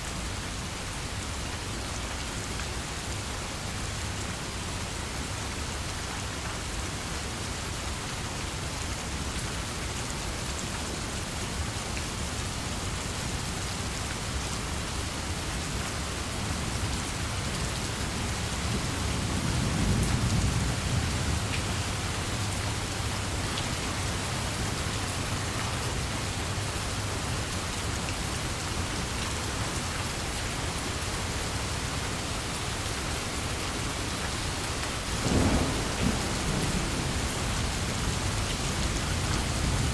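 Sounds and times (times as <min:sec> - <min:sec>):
heavy rain falling: 0:00.1 - 0:39.9
thunder rumbling: 0:35.0 - 0:39.9.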